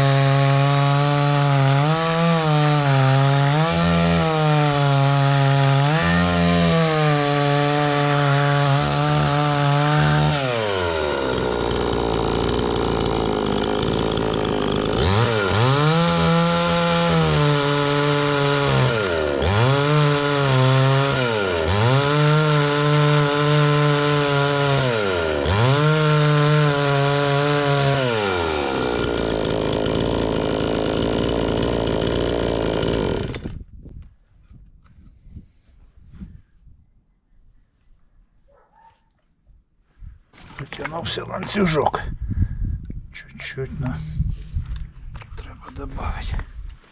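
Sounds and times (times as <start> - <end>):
chainsaw cutting wood: 0.0 - 33.7.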